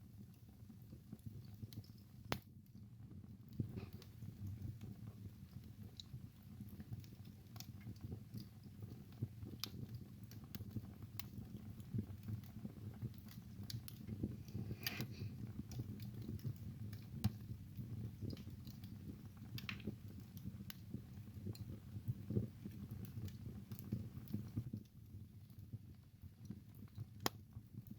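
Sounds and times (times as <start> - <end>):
low rumble of flames: 0.0 - 27.9
burning wood crackling: 3.4 - 27.9
loud pops of fire: 8.2 - 24.7.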